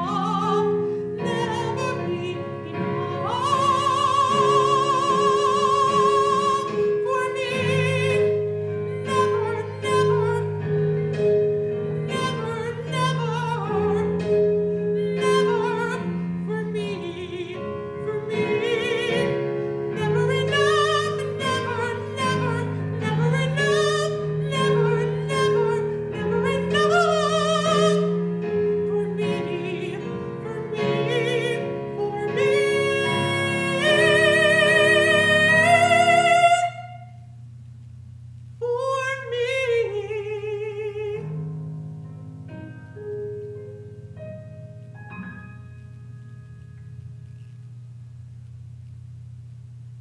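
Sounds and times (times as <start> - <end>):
person singing a pop ballad: 0.0 - 37.1
piano accompaniment: 0.0 - 50.0.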